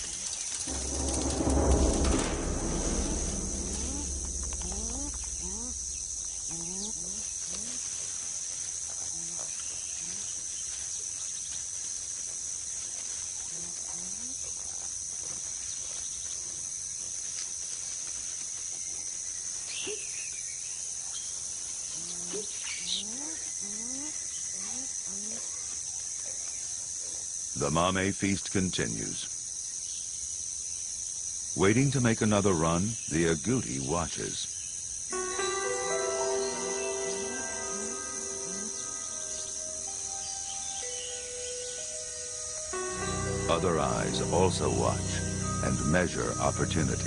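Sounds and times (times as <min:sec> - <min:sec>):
insects droning: 0:00.0 - 0:47.0.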